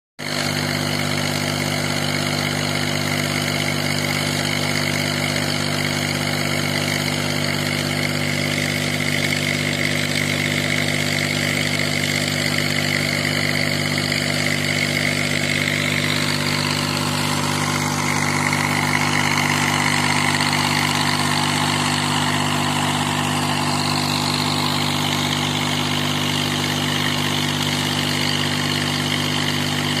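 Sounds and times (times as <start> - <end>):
tractor engine hum: 1.1 - 30.0
high whine: 15.6 - 27.8.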